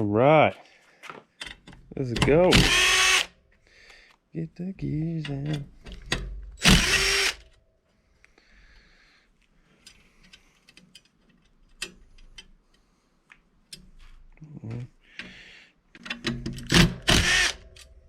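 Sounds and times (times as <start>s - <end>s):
power tool burst: 2.5s - 3.3s, 6.6s - 7.4s, 16.8s - 17.6s
metallic clicks of tools: 9.8s - 12.8s.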